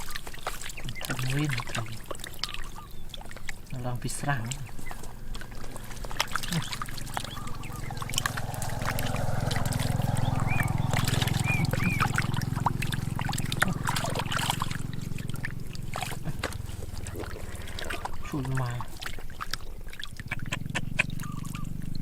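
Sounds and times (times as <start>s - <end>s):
water splashing and trickling: 0.0s - 22.0s
low hum: 4.4s - 22.0s.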